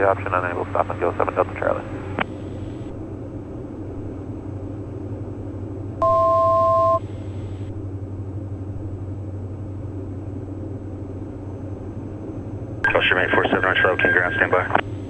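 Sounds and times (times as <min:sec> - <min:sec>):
aircraft engines droning: 0:00.0 - 0:15.0
two-tone electronic beep: 0:06.0 - 0:07.0.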